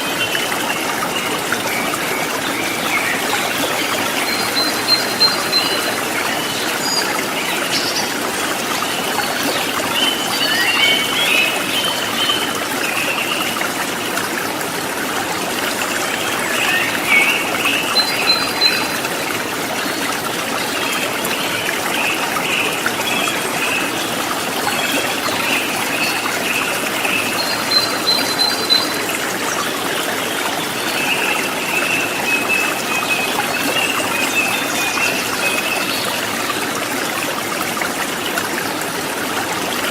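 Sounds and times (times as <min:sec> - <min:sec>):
river water splashing over rocks: 0:00.0 - 0:39.9.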